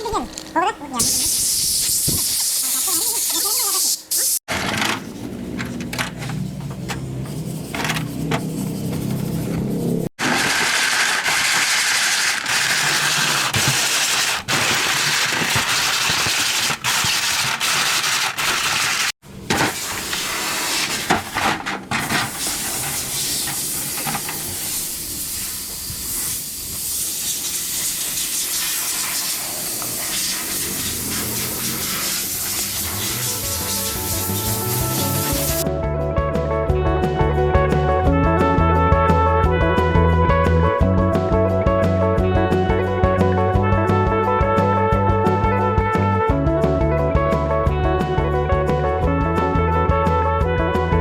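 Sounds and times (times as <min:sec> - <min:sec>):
compressed air spraying hiss: 0:01.0 - 0:04.4, 0:22.1 - 0:35.6.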